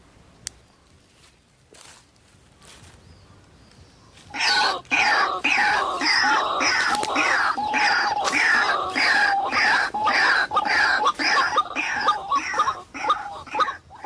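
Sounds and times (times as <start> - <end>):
waterhen calling harshly: 4.3 - 14.0.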